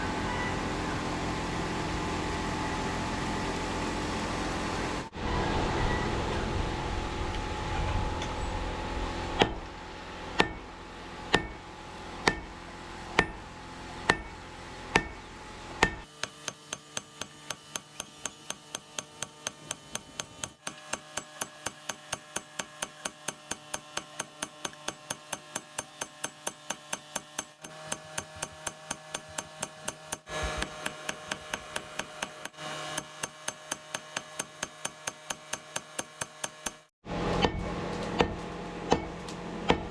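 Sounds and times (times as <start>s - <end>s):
hammer striking steel on anvil: 9.4s - 9.7s, 10.3s - 39.9s.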